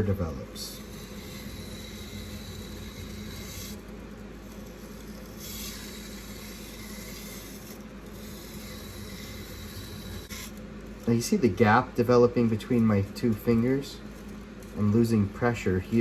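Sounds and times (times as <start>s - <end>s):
knife scraping on whetstone: 0.1s - 11.2s.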